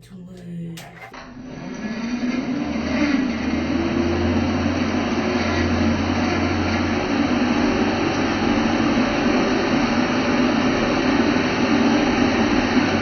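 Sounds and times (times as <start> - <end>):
hair dryer running: 0.8 - 13.0.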